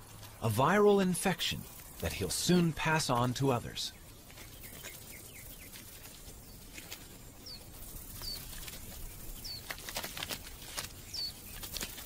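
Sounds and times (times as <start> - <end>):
small bird chirps: 3.9 - 9.9, 11.0 - 12.0.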